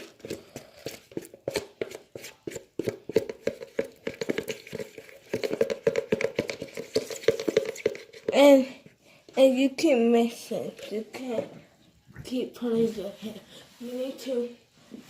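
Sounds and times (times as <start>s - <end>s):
hands squelching sticky slime: 0.0s - 8.3s.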